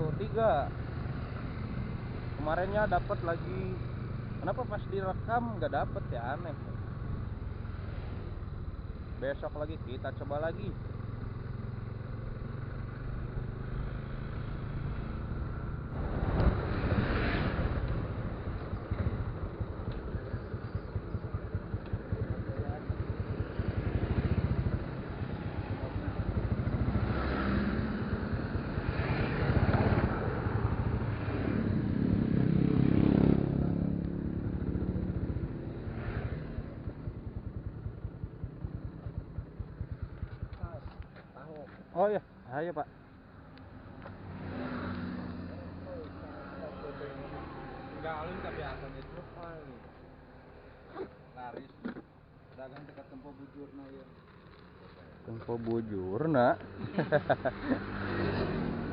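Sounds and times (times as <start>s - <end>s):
motorcycle engine running: 0.0s - 16.9s, 17.5s - 41.7s.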